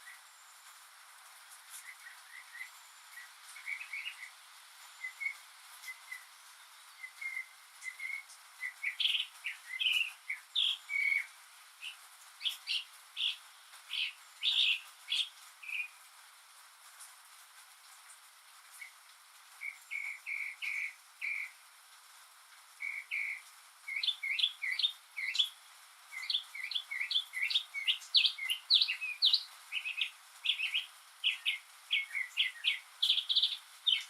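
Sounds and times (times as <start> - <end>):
mockingbird singing: 7.0 - 16.0, 19.6 - 21.6, 22.8 - 34.0.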